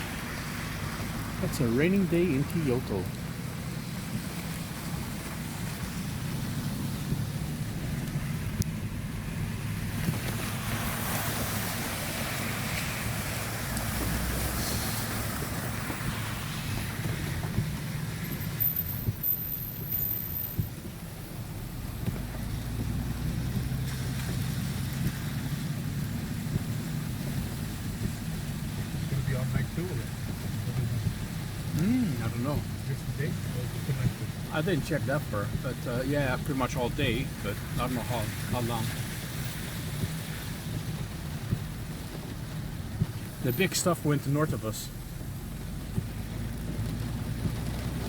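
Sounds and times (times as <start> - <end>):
road and engine drone: 0.0 - 48.0
wind rushing past window: 3.3 - 34.6.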